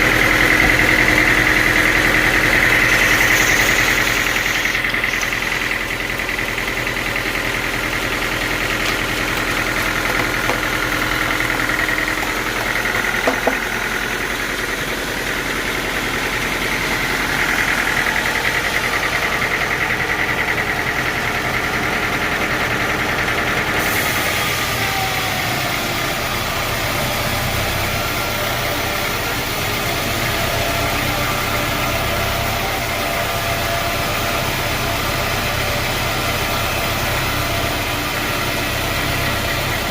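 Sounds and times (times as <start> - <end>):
high machine whine: 0.0 - 22.1
engine drone: 0.0 - 39.9
brief knocks: 13.2 - 13.7.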